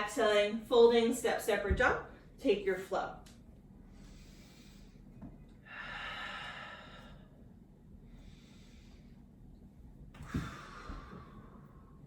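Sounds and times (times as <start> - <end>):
person breathing: 3.9 - 7.5, 8.1 - 9.4.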